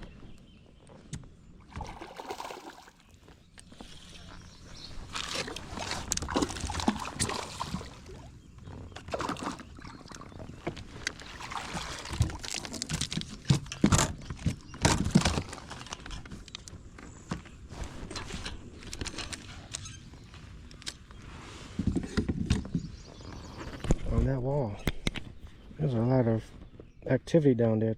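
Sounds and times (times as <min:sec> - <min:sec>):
water splashing around kayak: 0:01.6 - 0:03.3, 0:05.1 - 0:14.0.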